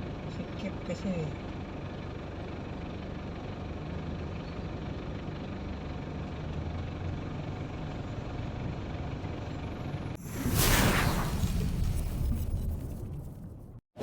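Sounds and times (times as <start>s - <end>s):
truck engine running: 0.0s - 10.2s
road noise: 0.0s - 13.8s.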